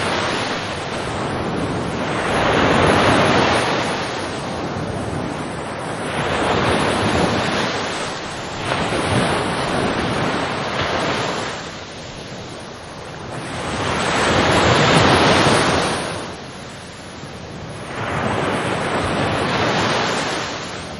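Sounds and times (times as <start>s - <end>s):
ocean waves breaking: 0.0s - 20.9s.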